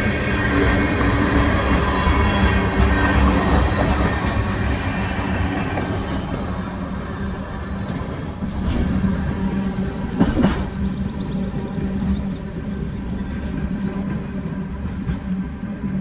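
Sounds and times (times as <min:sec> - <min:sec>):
train wheels clacking on track: 0:00.0 - 0:16.0.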